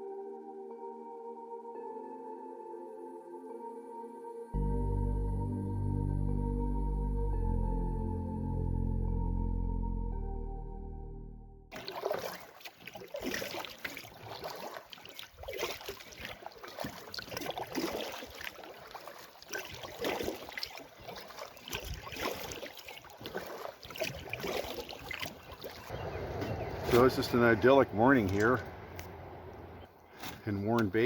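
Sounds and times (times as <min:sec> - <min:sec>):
paddle splashing water: 0:11.7 - 0:31.0
steady water wash: 0:11.7 - 0:31.0.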